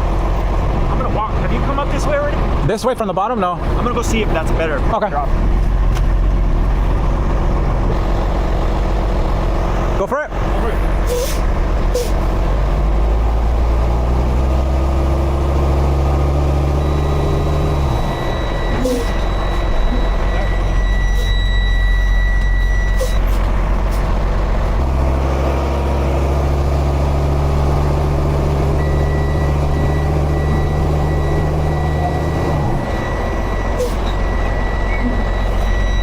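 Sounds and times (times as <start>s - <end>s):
diesel truck engine under load: 0.0s - 36.0s
reversing alarm tone: 15.6s - 23.4s, 28.6s - 36.0s.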